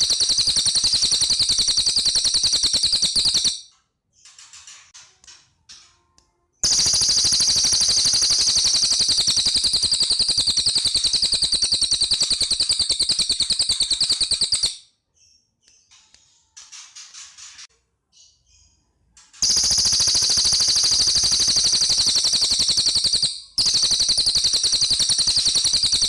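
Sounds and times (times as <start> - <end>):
bird rapid trill: 0.0 - 3.7, 6.6 - 14.8, 19.4 - 26.0
faint bird chirps: 0.0 - 26.0.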